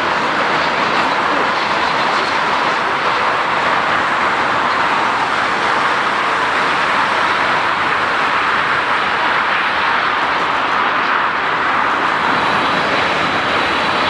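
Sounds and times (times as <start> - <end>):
aircraft rushing noise: 0.0 - 14.0.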